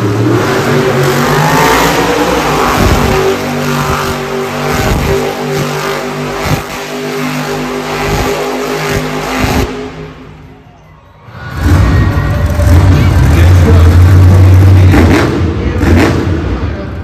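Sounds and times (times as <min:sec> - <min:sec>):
truck engine revving: 0:00.0 - 0:10.6, 0:11.2 - 0:17.0.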